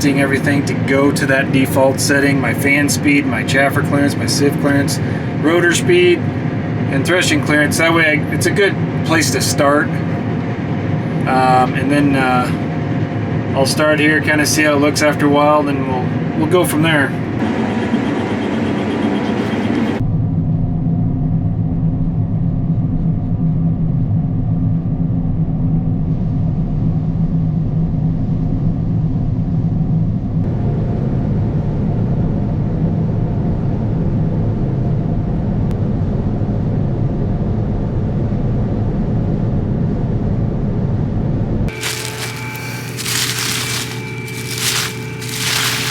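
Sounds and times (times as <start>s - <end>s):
combine harvester drone: 17.4s - 20.0s.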